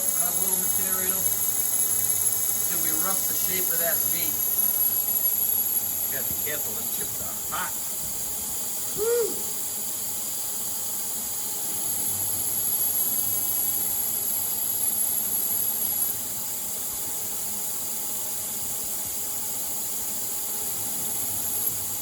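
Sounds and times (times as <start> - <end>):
coolant mist and cutting hiss: 0.0 - 9.6.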